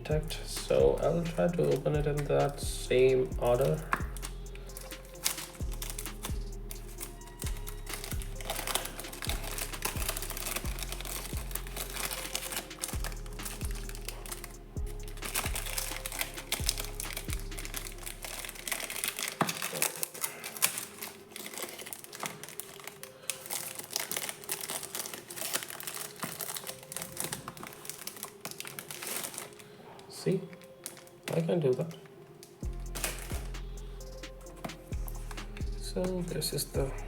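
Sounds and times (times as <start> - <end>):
background music with bass beat: 0.0 - 19.1, 32.6 - 37.0
packaging crinkling and rustling: 0.6 - 36.7.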